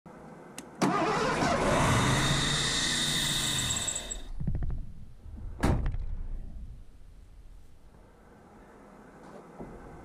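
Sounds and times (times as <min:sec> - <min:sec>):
engine cranking hum and hiss: 0:00.3 - 0:04.4.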